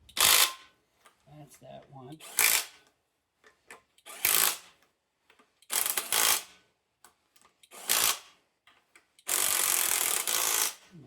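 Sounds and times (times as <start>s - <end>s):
pneumatic wrench bursts: 0.0s - 0.7s, 2.2s - 2.8s, 4.0s - 4.8s, 5.6s - 6.6s, 7.6s - 8.4s, 9.2s - 10.9s.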